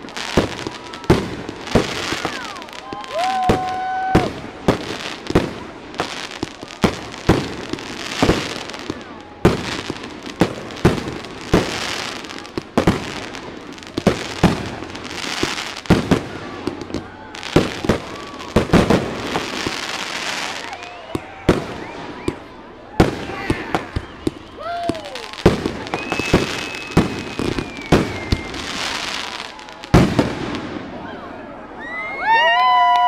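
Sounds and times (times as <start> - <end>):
fireworks bursting with bangs: 0.0 - 31.0
fireworks crackling: 0.0 - 31.2
firework whistle: 14.4 - 31.1.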